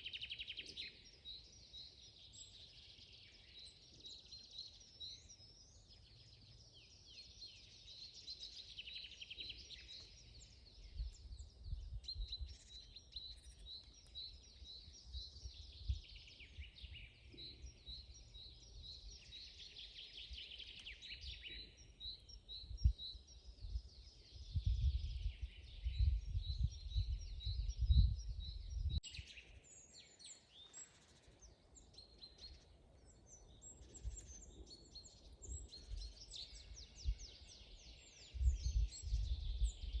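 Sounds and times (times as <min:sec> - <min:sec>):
songbirds chirping and trilling: 0:00.0 - 0:40.0.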